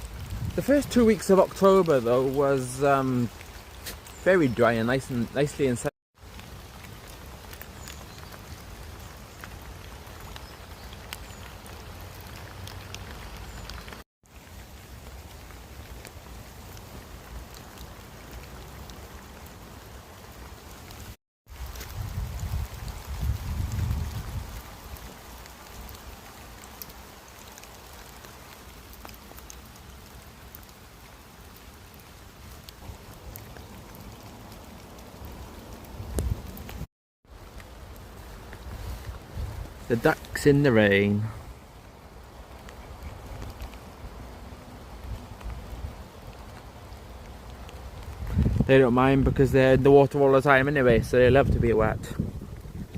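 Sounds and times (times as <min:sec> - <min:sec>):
raindrops ticking: 0:00.0 - 0:49.8
rain falling in woodland: 0:00.0 - 0:52.9.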